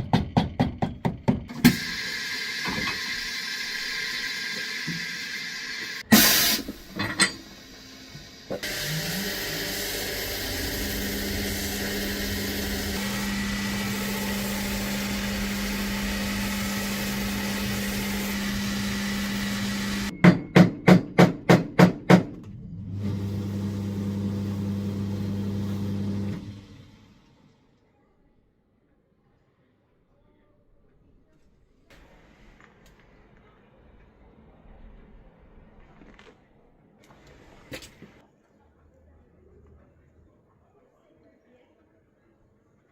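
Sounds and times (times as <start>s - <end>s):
electric motor humming: 8.6s - 20.1s.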